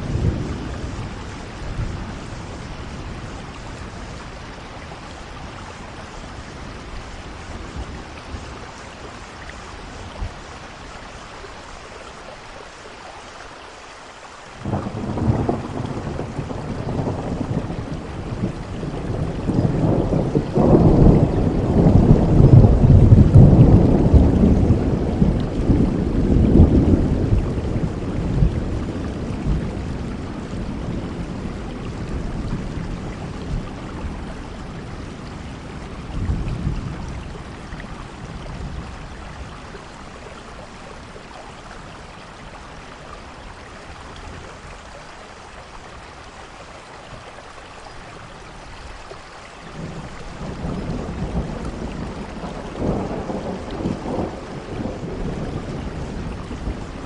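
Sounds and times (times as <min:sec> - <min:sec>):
low rolling thunder: 0:00.0 - 0:10.6, 0:14.6 - 0:42.6, 0:49.7 - 0:57.0
steady rainfall: 0:00.0 - 0:57.0.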